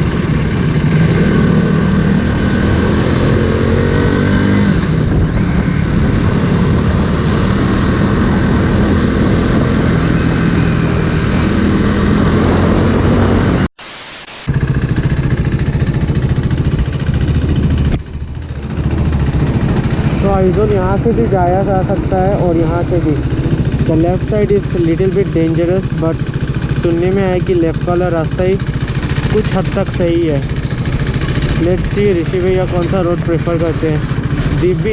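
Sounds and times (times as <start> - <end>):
motorcycle engine running: 0.0 - 13.6, 14.4 - 34.9
wind noise on microphone: 0.0 - 13.7
burst of hiss: 13.8 - 14.5.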